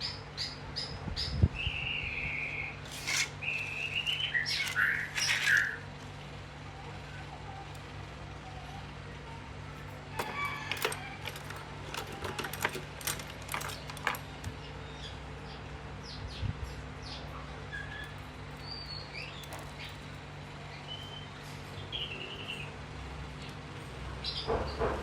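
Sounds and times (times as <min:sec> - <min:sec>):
birds chirping: 0:00.0 - 0:06.0, 0:10.3 - 0:23.6.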